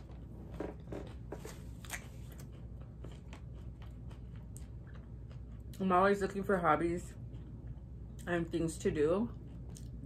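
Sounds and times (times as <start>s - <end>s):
crunchy taco chewing: 0.0s - 6.0s, 7.1s - 8.3s, 9.3s - 10.0s.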